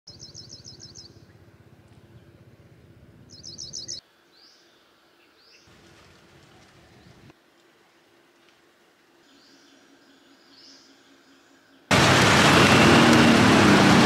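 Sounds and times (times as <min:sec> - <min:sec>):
bird chirping: 0:00.1 - 0:01.4, 0:02.0 - 0:05.7.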